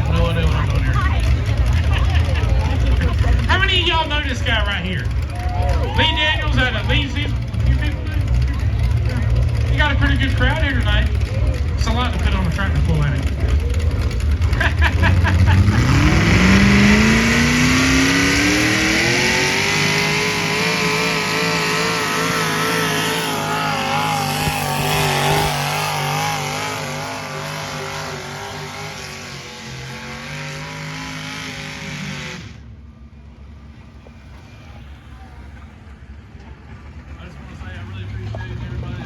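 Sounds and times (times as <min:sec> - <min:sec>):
engine revving hard: 0:05.6 - 0:32.7.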